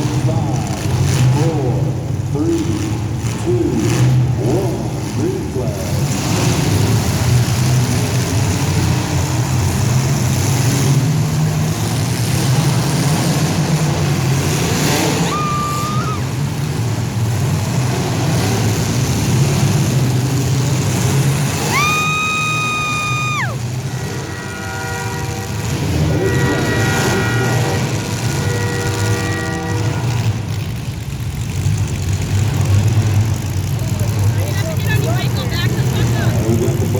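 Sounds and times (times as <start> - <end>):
car engines running: 0.0 - 36.9
car horn blasts: 23.8 - 30.7.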